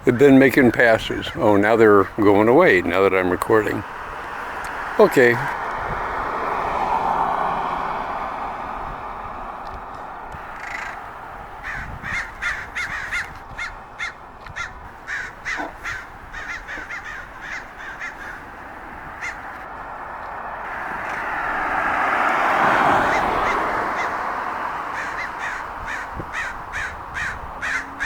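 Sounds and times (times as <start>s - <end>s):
crows cawing: 10.0s - 28.0s.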